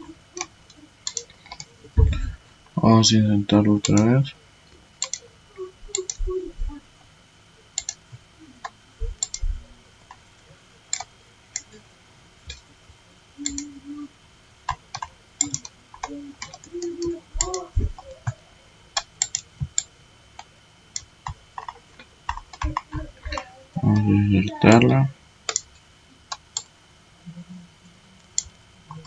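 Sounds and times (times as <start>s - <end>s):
computer mouse and keyboard clicking: 0.3s - 2.3s, 3.8s - 5.3s, 5.9s - 7.1s, 7.7s - 12.7s, 13.4s - 13.8s, 14.6s - 24.1s, 25.5s - 26.8s, 28.2s - 29.0s.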